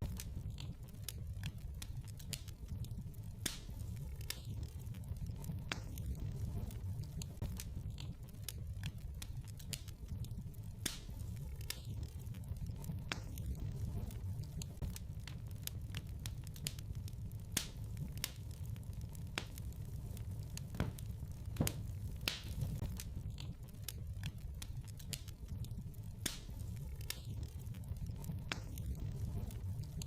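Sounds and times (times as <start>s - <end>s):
fire crackling in a fireplace: 0.0s - 30.0s.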